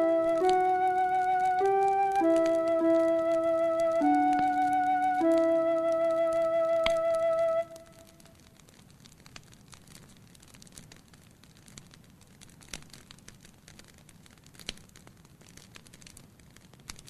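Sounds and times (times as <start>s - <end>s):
wood fire crackling: 0.0s - 17.0s
sharp fire pops: 7.7s - 17.0s.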